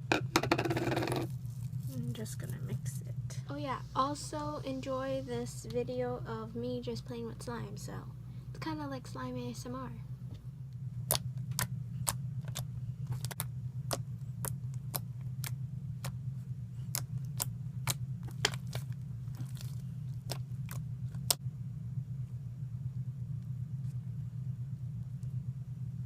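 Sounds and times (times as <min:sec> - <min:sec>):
low hum: 0:00.0 - 0:26.0
crunchy slime clicking pops: 0:16.9 - 0:21.4.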